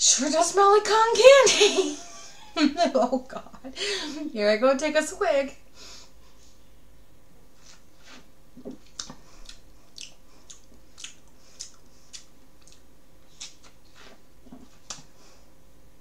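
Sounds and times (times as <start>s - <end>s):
lip and tongue clicks: 8.8s - 13.8s.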